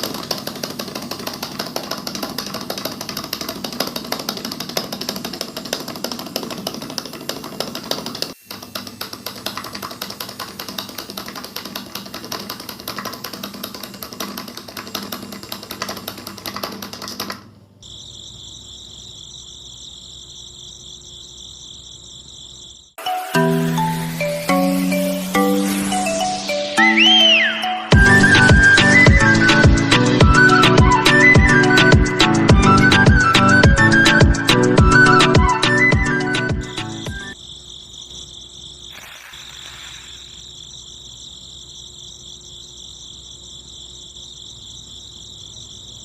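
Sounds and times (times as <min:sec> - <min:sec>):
electric motor rattling: 0:00.0 - 0:17.5, 0:38.3 - 0:40.8
high-pitched whine: 0:38.9 - 0:41.0.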